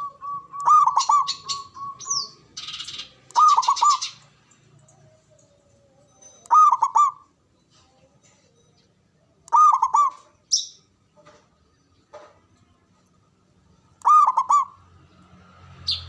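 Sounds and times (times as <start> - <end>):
dove cooing: 0.0 - 4.2, 6.4 - 7.3, 9.5 - 10.3, 14.0 - 14.8.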